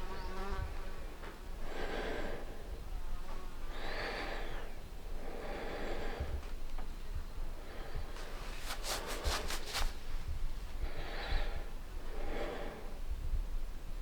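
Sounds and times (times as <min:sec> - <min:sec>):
person breathing: 0:01.6 - 0:02.8, 0:03.7 - 0:06.5, 0:07.6 - 0:13.0.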